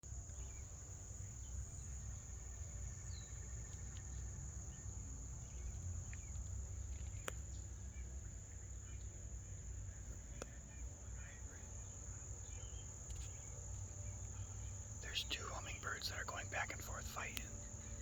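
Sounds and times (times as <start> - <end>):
faint bird chirps: 0.3 - 18.0
high-pitched insect trill: 12.4 - 18.0.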